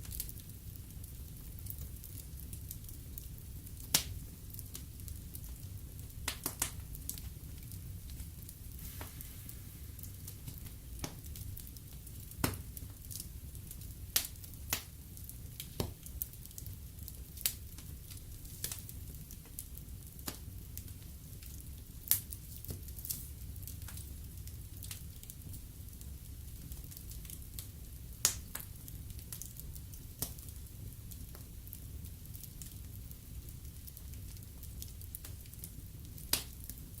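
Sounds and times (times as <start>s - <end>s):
low rumble of flames: 0.0s - 37.0s
wood fire crackling: 0.0s - 37.0s
sharp pops of fire: 6.2s - 7.4s, 8.1s - 13.2s, 15.6s - 16.3s, 18.5s - 19.6s, 27.6s - 29.6s, 36.2s - 36.8s.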